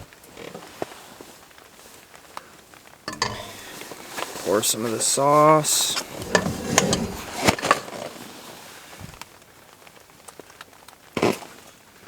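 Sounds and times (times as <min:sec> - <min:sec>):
utensils clicking against a pot: 0:03.1 - 0:07.8.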